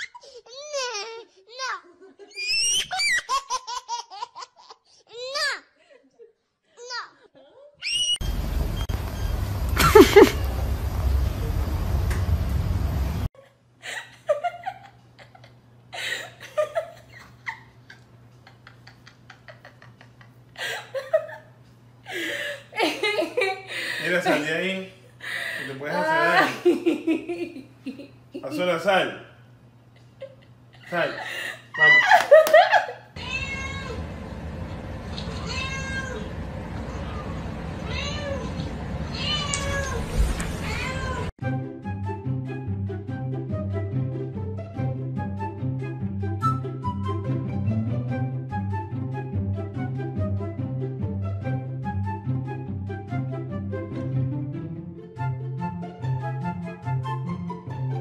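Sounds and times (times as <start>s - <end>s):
meow-like animal cries: 33.2s - 34.0s, 35.3s - 36.3s, 37.8s - 41.3s
music: 41.4s - 58.0s.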